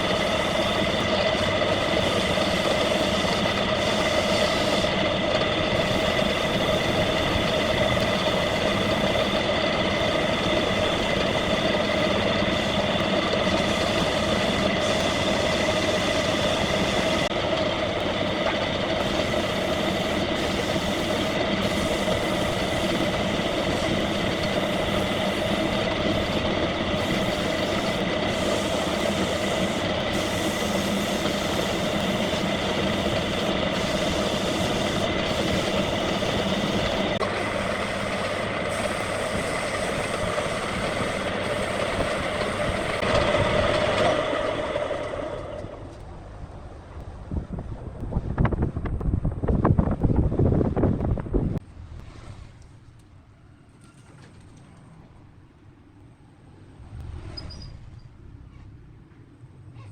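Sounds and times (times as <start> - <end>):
wood lathe whine: 0.0 - 46.1.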